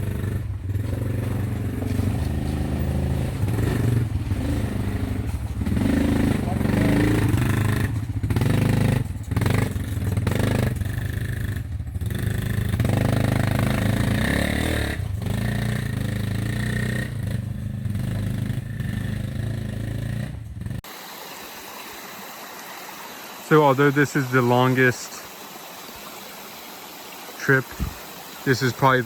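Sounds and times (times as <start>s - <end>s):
quad bike engine running: 0.0s - 20.8s.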